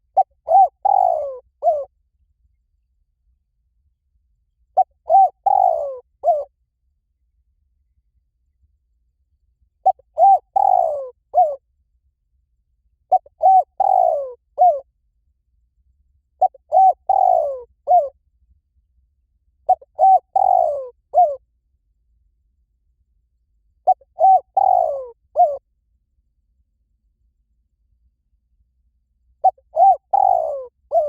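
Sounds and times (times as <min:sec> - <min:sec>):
dove cooing: 0:00.1 - 0:01.9, 0:04.8 - 0:06.5, 0:09.8 - 0:11.6, 0:13.1 - 0:14.8, 0:16.4 - 0:18.1, 0:19.7 - 0:21.4, 0:23.9 - 0:25.6, 0:29.4 - 0:31.0.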